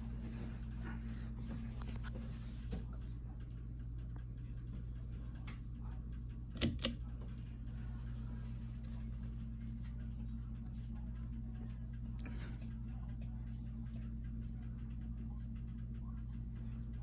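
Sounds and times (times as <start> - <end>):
ceiling fan motor humming: 0.0 - 17.0
sharp clicks: 6.1 - 7.5.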